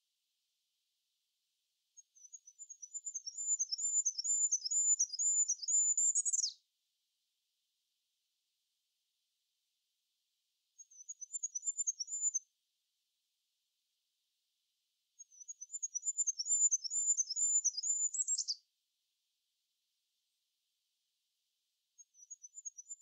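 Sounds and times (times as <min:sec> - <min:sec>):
small songbird singing: 0:02.0 - 0:06.6, 0:10.8 - 0:12.5, 0:15.2 - 0:18.6, 0:22.0 - 0:23.0.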